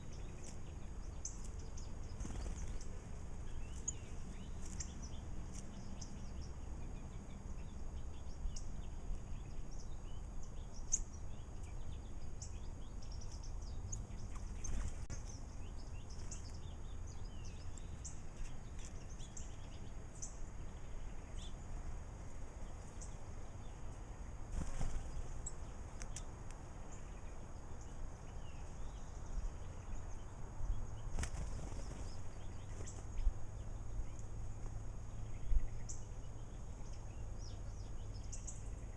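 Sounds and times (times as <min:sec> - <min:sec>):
low background rumble: 0:00.0 - 0:38.9
birds fluttering wings: 0:01.4 - 0:05.7, 0:14.2 - 0:15.2, 0:24.5 - 0:26.3, 0:31.0 - 0:33.2.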